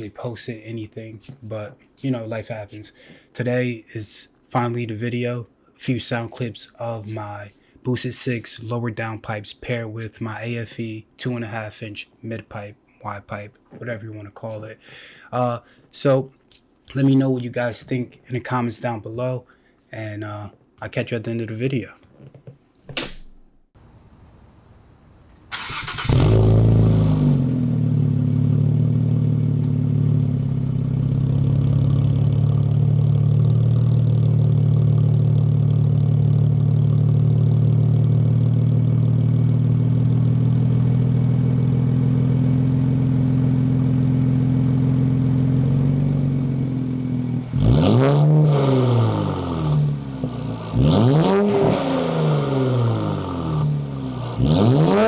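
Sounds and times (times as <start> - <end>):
car engine revving: 25.5 - 55.0
car engine starting and idling: 25.5 - 55.0.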